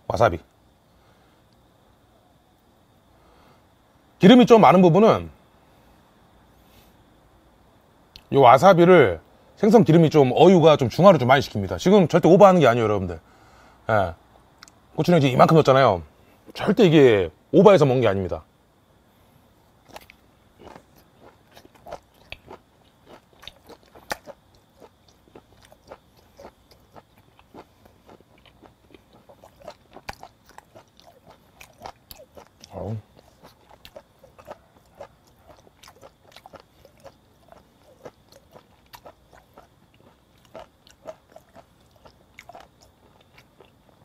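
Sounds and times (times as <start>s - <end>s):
wet chewing mouth smacks: 19.9s - 43.8s.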